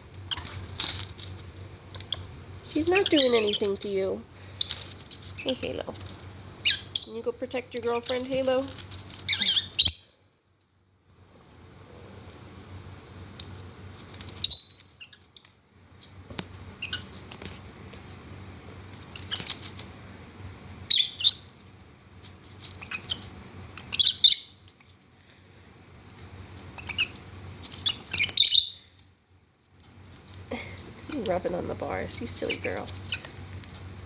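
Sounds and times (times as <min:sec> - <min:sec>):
lovebirds squawking and chirping: 0:02.0 - 0:05.8, 0:06.6 - 0:08.6, 0:09.2 - 0:10.2, 0:14.4 - 0:15.3, 0:20.9 - 0:21.5, 0:22.6 - 0:24.6, 0:26.7 - 0:28.9, 0:32.2 - 0:33.4.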